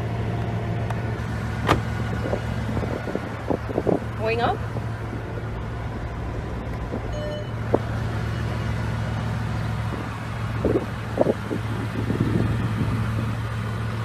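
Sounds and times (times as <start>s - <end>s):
car engine idling: 0.0s - 14.0s
short electronic beep: 7.1s - 7.6s.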